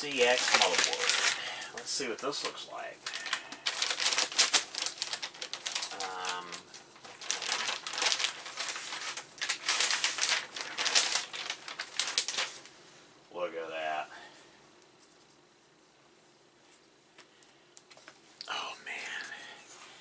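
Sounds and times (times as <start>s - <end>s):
plastic bag crinkling: 0.0s - 12.7s.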